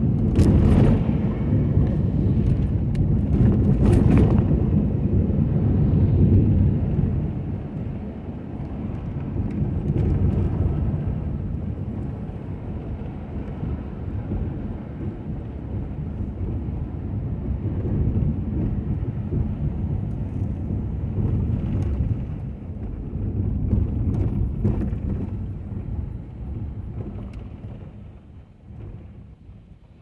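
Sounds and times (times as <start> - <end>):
pickup truck engine rumbling: 0.0 - 8.4.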